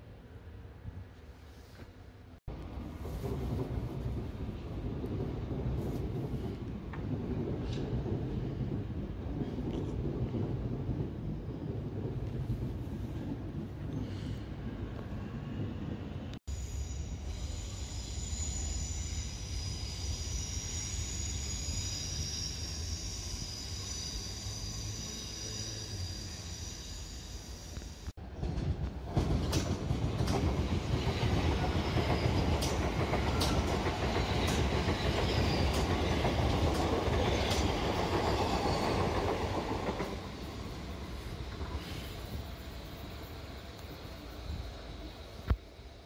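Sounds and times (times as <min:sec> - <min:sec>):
train rumbling on rails: 0:00.1 - 0:46.0
electric train whine: 0:14.8 - 0:28.1.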